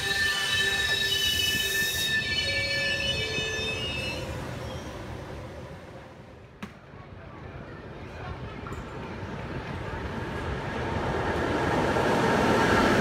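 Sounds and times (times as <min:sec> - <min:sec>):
train wheels squealing: 0:00.0 - 0:05.2
train noise: 0:00.0 - 0:13.0.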